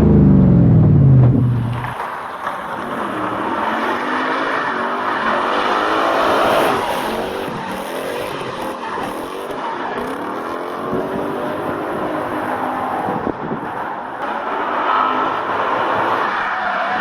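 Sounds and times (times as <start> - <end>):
car engine revving: 0.0 - 13.3.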